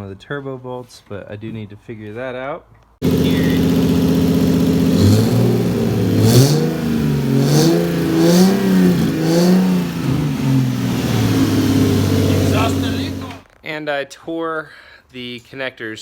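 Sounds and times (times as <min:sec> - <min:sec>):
car engine idling and revving: 0:03.0 - 0:13.4.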